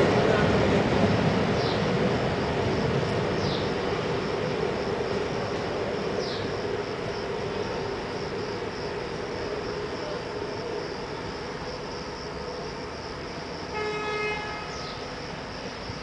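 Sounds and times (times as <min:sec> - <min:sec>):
crickets chirring: 0:00.0 - 0:16.0
electric train rumble and hum: 0:00.0 - 0:16.0
horn-like tone: 0:13.7 - 0:14.8.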